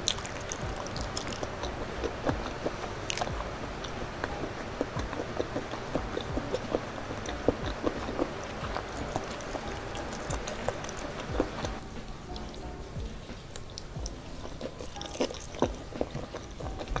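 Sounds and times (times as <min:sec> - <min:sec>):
wet chewing and mouth smacks: 0:00.0 - 0:17.0.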